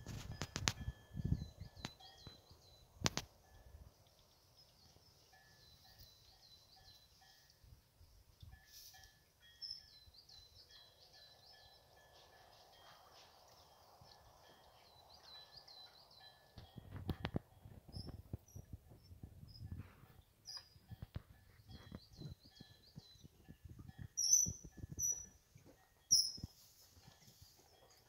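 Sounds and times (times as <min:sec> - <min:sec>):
faint birdsong: 0:00.3 - 0:28.0.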